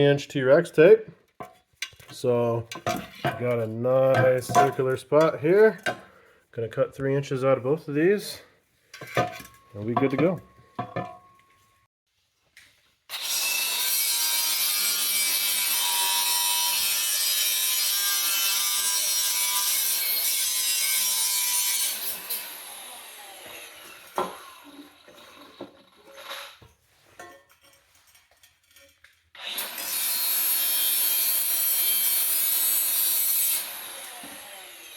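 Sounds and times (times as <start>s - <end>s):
power tool cutting metal pipe: 13.1s - 26.6s, 29.4s - 34.9s.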